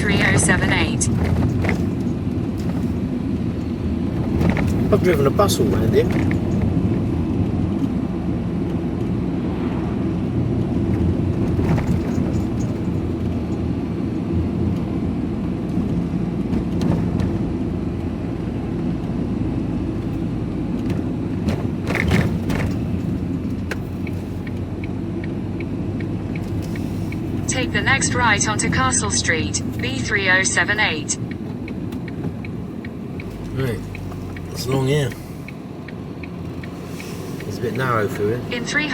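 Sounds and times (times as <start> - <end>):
vehicle engine and road noise: 0.0 - 38.9.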